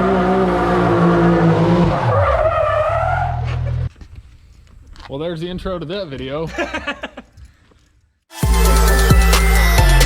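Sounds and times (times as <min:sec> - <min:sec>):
engine running at high revs: 0:00.0 - 0:02.1.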